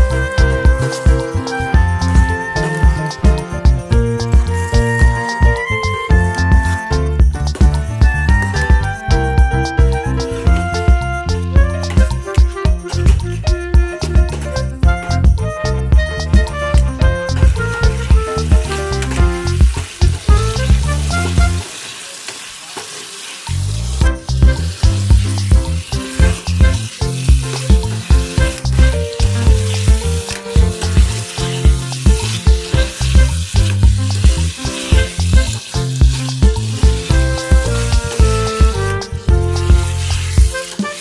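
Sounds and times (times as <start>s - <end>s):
background music with beat: 0.0s - 21.7s, 24.0s - 41.0s
chicken sizzling in a pan: 17.7s - 38.7s, 39.8s - 41.0s.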